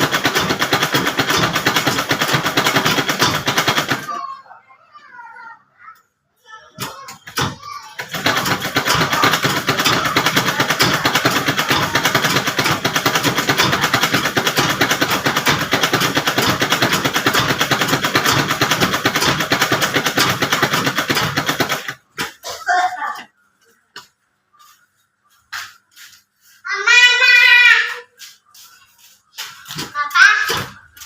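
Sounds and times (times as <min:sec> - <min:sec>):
sewing machine running: 0:00.0 - 0:04.2, 0:07.4 - 0:22.2.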